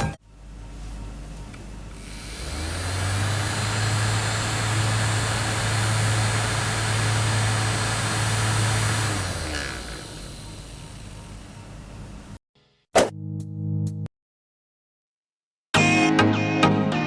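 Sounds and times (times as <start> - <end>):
electric fan motor humming: 0.0 - 12.4.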